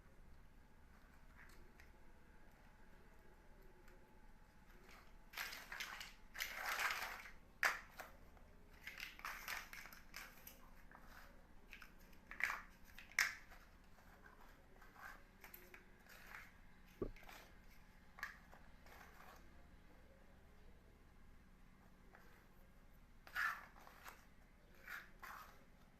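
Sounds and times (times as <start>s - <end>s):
plastic blocks rubbing and rattling: 4.6s - 19.6s, 23.2s - 25.9s.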